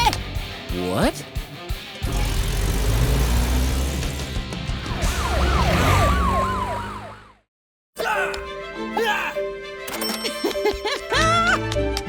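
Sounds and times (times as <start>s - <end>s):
siren wailing: 4.8s - 7.5s.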